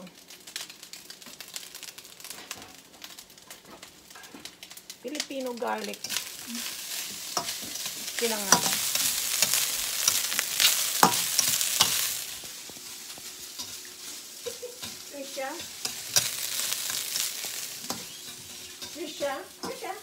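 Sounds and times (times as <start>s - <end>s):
fried rice sizzling in oil: 0.0s - 20.0s
metal spatula scraping pan: 14.8s - 19.9s.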